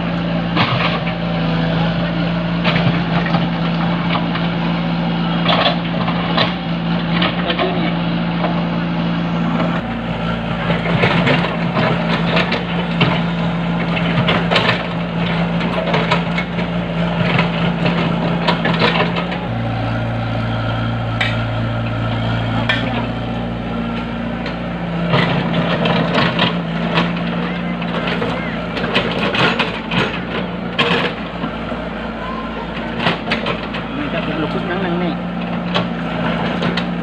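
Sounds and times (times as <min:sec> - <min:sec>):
backhoe engine running: 0:00.0 - 0:37.0
knocks and clanks: 0:10.6 - 0:20.2, 0:21.1 - 0:31.6.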